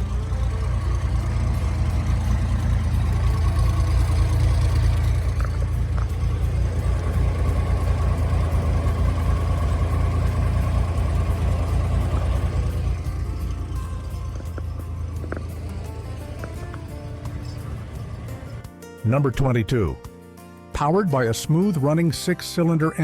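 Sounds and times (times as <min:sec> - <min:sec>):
car engine idling: 0:00.0 - 0:18.7.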